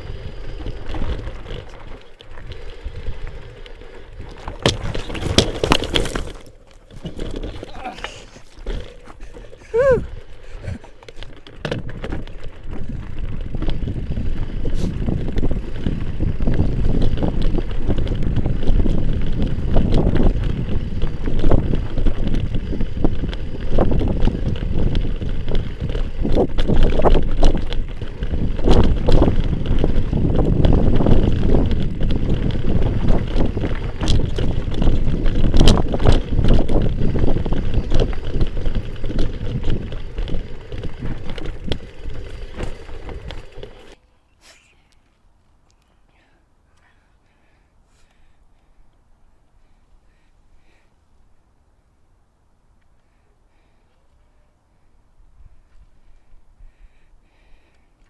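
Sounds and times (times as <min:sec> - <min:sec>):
bike rattling over rough trail: 0:00.0 - 0:44.0
wind buffeting microphone: 0:11.7 - 0:44.0.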